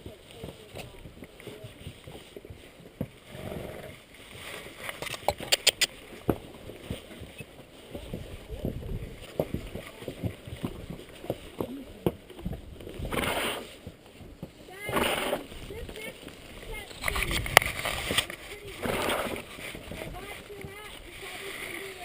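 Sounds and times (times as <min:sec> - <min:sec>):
sharp clicks: 0:04.9 - 0:06.0
wind buffeting microphone: 0:07.9 - 0:11.4, 0:12.0 - 0:13.6, 0:14.3 - 0:21.3.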